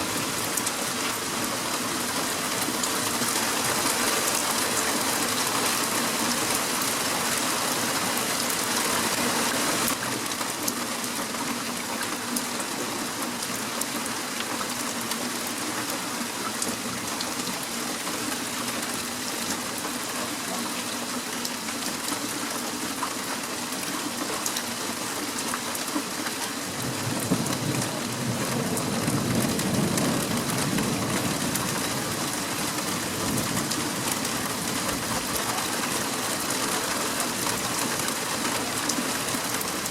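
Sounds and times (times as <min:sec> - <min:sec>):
heavy rain falling: 0:00.0 - 0:39.9
thunder rumbling: 0:26.8 - 0:31.8.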